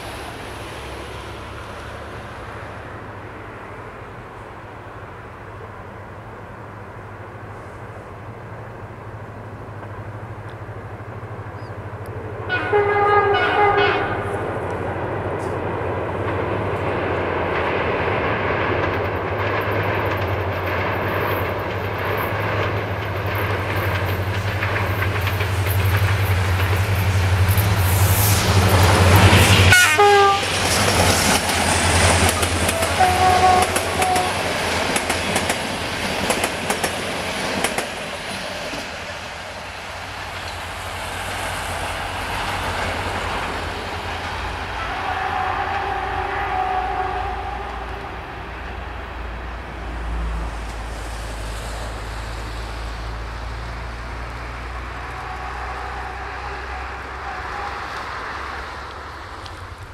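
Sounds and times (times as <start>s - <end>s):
diesel locomotive engine drone: 0.0s - 59.9s
train wheel clatter: 9.7s - 48.9s
train horn: 12.4s - 14.5s, 28.2s - 30.7s, 32.3s - 34.6s, 44.6s - 48.4s, 54.7s - 58.7s.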